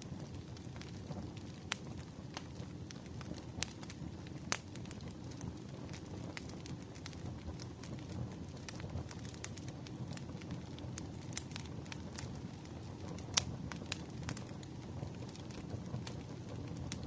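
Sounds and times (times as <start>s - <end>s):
pops and snaps from burning logs: 0.0s - 17.0s
wood fire crackling: 0.0s - 17.0s.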